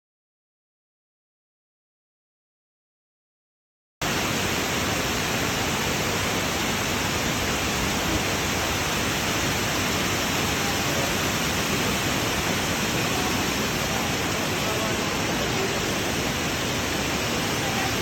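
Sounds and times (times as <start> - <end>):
waterfall rushing: 4.0 - 18.0.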